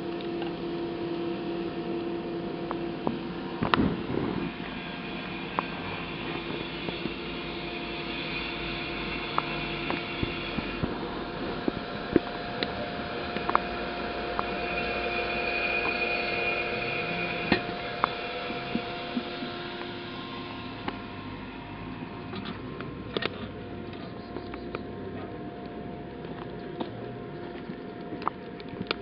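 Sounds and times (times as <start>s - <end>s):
steady hum: 0.0s - 29.0s
firewood crackling: 1.7s - 21.0s, 25.6s - 29.0s.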